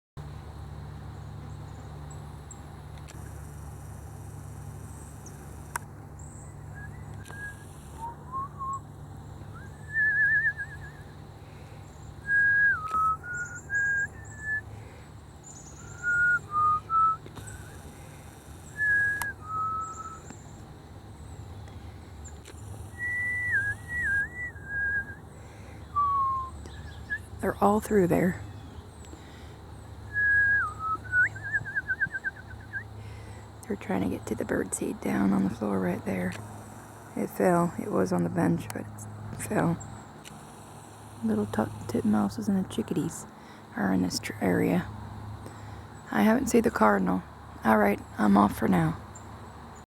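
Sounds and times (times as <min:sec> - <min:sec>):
person whistling: 0:06.8 - 0:08.8, 0:09.6 - 0:11.0, 0:12.3 - 0:14.6, 0:15.9 - 0:17.2, 0:18.8 - 0:20.2, 0:26.0 - 0:26.5, 0:30.1 - 0:32.8
faint high bird chirps: 0:11.8 - 0:14.6, 0:15.4 - 0:17.8, 0:18.7 - 0:20.6.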